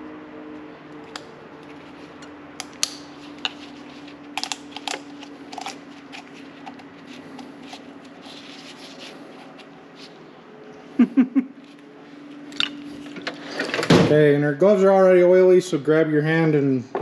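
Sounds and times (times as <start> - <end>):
steady low hum: 0.0 - 15.9
hands clicking plastic parts: 4.3 - 5.8.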